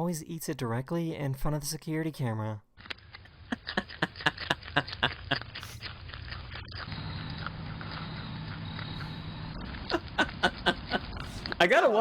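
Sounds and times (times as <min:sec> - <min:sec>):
groundhog chewing food: 0:02.8 - 0:11.7.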